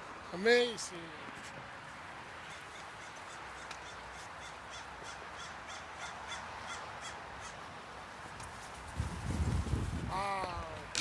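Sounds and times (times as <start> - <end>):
bird calling: 2.4 - 7.7.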